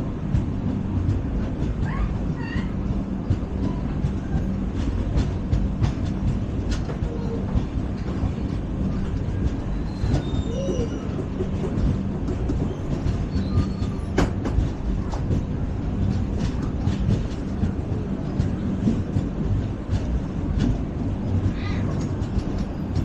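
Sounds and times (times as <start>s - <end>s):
train coach rumbling on track: 0.0s - 23.0s
knocks and rattles: 0.2s - 23.0s
faint wheel squeals: 9.7s - 11.2s, 12.6s - 14.2s.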